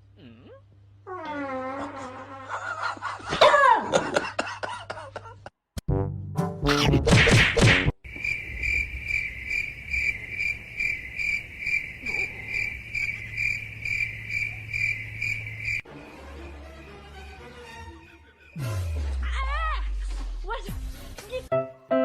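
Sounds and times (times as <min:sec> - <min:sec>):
cricket chirping: 0:08.0 - 0:18.6.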